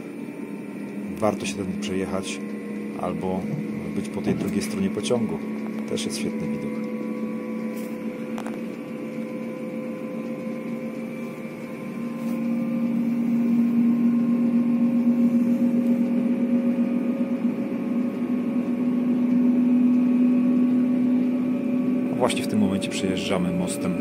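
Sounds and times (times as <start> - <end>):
train hum inside carriage: 0.0 - 24.0.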